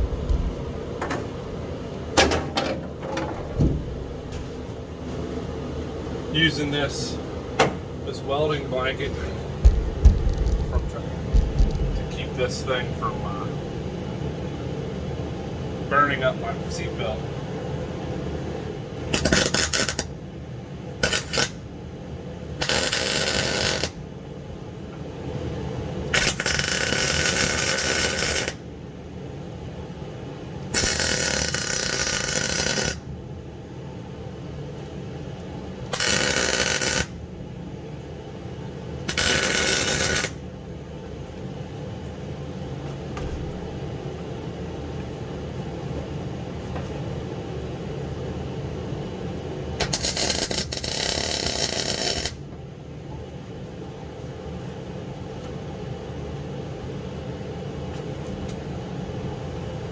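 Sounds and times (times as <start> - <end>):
steady low hum: 0.0 - 22.6
welding arc crackling hiss: 19.2 - 20.0, 21.0 - 21.6, 22.6 - 24.0, 26.2 - 28.6, 30.8 - 33.0, 35.9 - 37.2, 39.1 - 40.4, 49.8 - 52.4.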